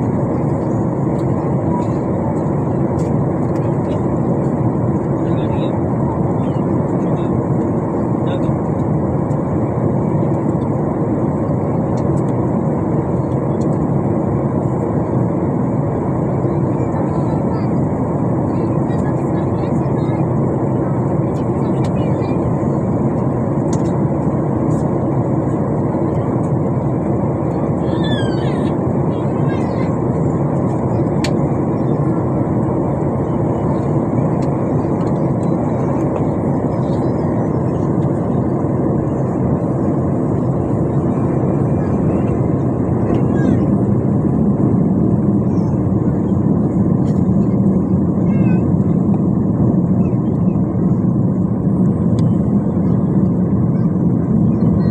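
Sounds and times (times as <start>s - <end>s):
jet cabin engine noise: 0.0s - 54.9s.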